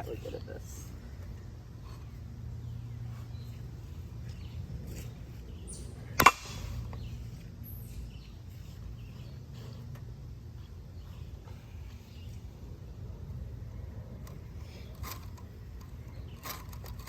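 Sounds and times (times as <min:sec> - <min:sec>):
bat striking fan: 0:06.1 - 0:06.8.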